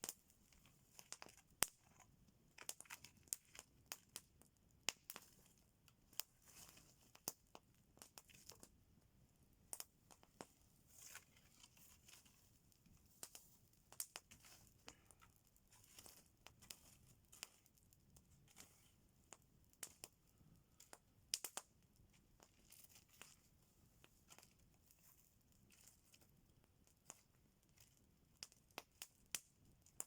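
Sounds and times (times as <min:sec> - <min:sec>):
campfire crackling: 0:13.2 - 0:18.6, 0:20.7 - 0:23.3, 0:25.4 - 0:30.0.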